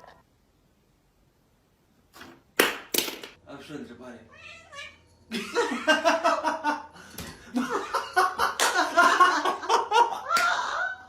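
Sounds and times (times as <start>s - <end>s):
people laughing: 5.3s - 11.0s.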